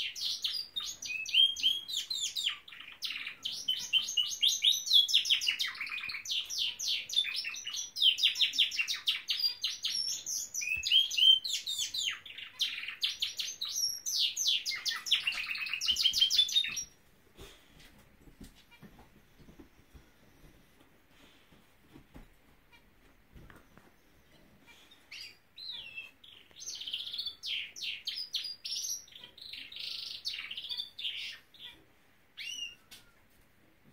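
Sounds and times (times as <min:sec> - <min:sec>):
canary singing: 0:00.0 - 0:17.0, 0:24.0 - 0:33.2.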